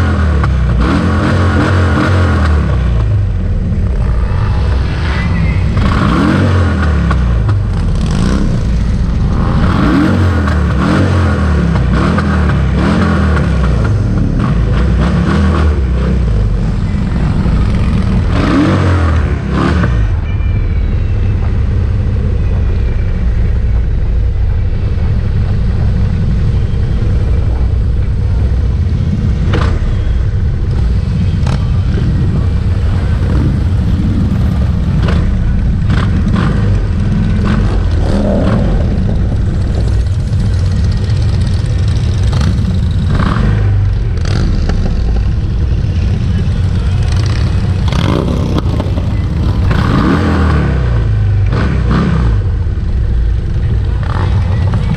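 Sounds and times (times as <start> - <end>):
motorcycles riding past: 24.6 - 52.7.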